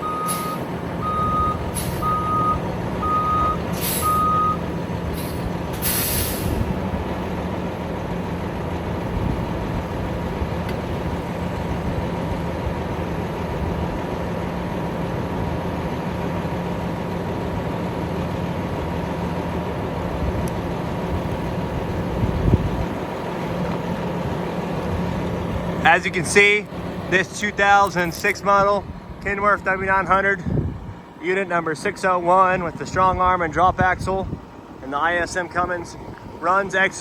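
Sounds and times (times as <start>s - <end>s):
diesel engine running: 0.0s - 37.0s
air release hisses: 3.7s - 4.2s, 5.1s - 6.6s.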